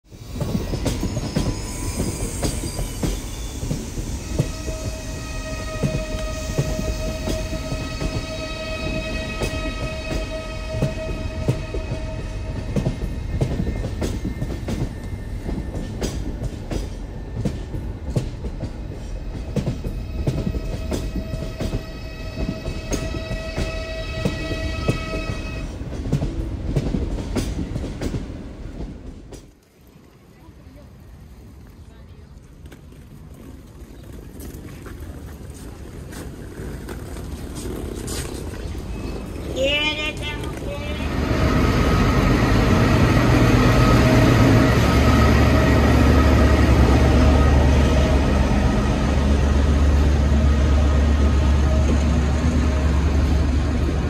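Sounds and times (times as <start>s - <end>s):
train rumble: 0.0s - 54.0s
long pitched horn tone: 4.2s - 12.7s, 20.5s - 25.7s
wheels clicking over rail joints: 25.8s - 41.2s.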